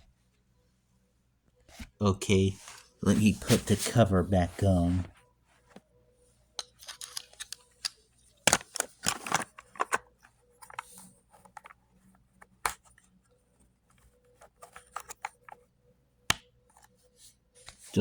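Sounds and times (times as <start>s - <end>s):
hard plastic clicking and scraping: 6.6s - 13.1s, 13.9s - 15.7s.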